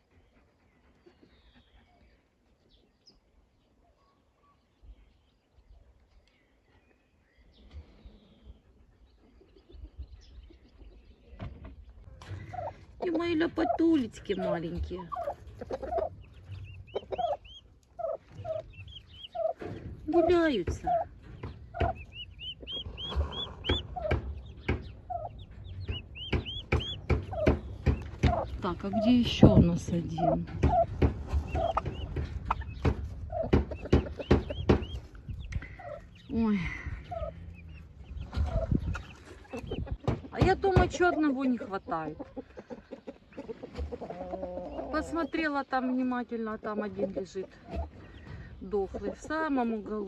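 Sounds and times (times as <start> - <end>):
turkey poults peeping: 0.0 - 50.0
low clucking calls: 9.2 - 50.0
sharp knocks: 23.0 - 25.0, 25.7 - 28.6, 30.4 - 35.0.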